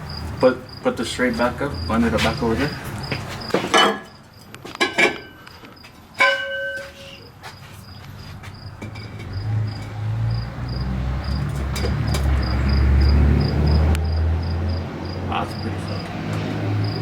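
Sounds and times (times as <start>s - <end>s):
crickets chirping: 0.0s - 4.6s, 5.2s - 17.0s
metal pipe clanking: 3.7s - 4.2s, 6.2s - 7.3s.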